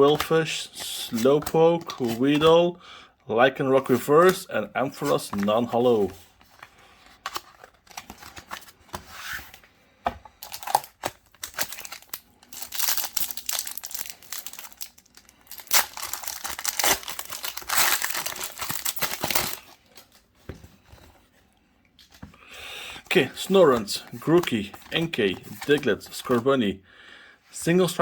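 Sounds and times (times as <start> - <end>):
foil wrapper tearing and crinkling: 10.4 - 19.8.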